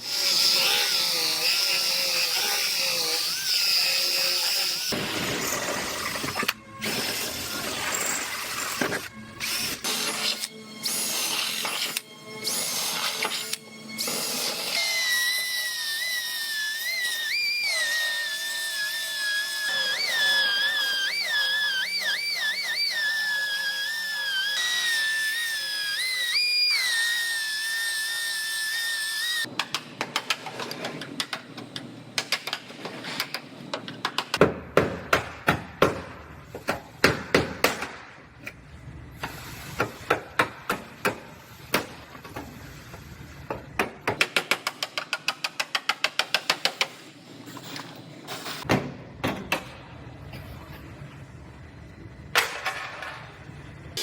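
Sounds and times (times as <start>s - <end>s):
power tool whining: 0.0s - 29.5s.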